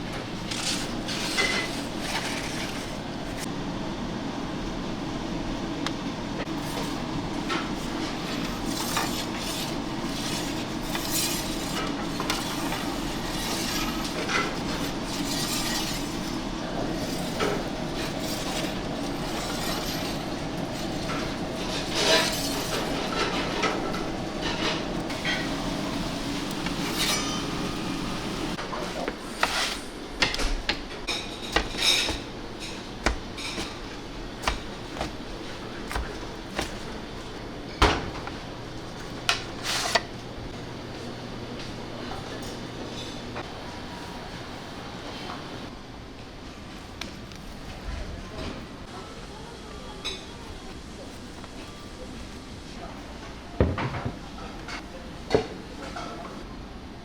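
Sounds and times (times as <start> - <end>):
steady background hum: 0.0 - 57.0
dishes and utensils clinking: 28.8 - 37.0.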